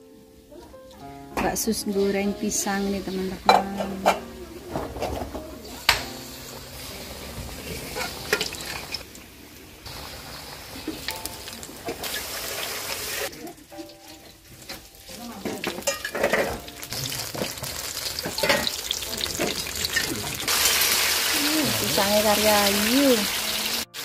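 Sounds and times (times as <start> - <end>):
fritters sizzling in oil: 9.8 - 13.4, 14.0 - 24.0.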